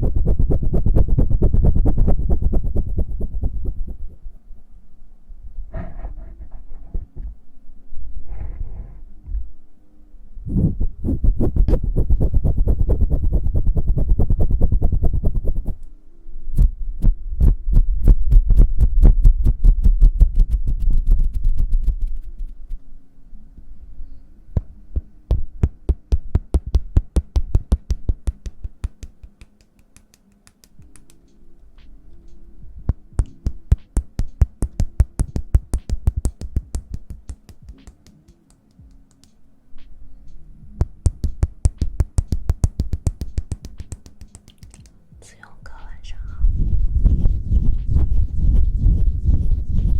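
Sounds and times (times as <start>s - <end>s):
hand tapping and clicking: 24.6s - 32.0s, 32.9s - 39.9s, 40.8s - 45.0s.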